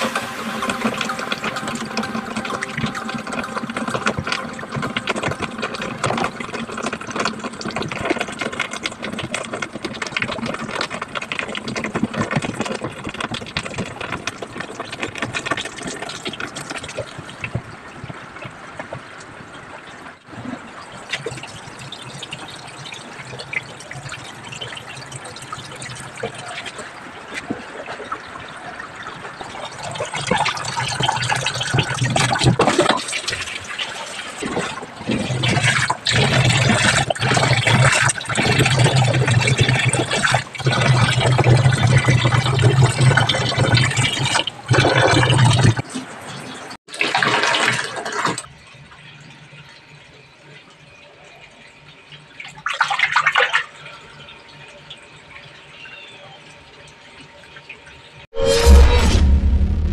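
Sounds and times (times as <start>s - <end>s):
low hum: 0.0s - 8.7s, 58.4s - 59.9s
water rushing in washing machine: 0.0s - 58.2s.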